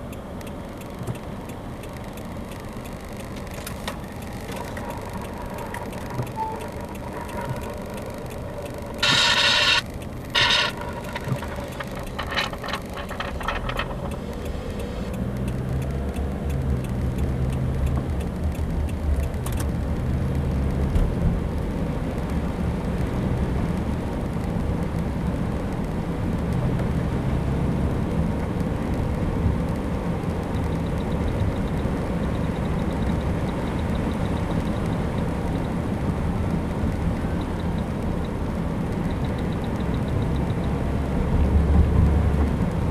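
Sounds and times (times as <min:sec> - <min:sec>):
vehicle engine and road noise: 0:00.0 - 0:42.9
short loud tones: 0:06.3 - 0:13.9.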